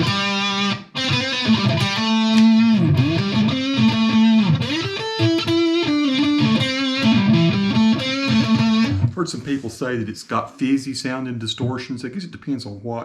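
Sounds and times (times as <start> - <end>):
distorted electric guitar lead: 0.0 - 9.2.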